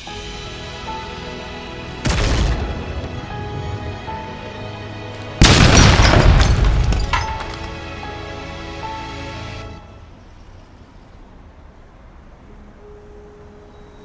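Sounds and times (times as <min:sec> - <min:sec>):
background music: 0:00.0 - 0:10.3
loud booms rumbling: 0:05.4 - 0:06.9.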